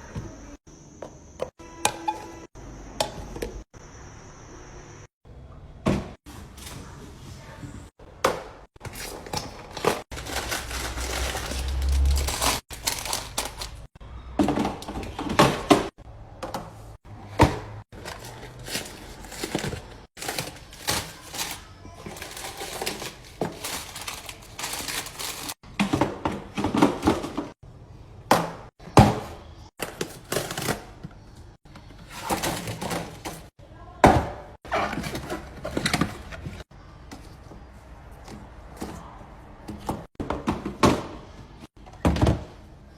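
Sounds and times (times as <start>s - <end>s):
containers knocking and clattering: 8.2s - 27.6s.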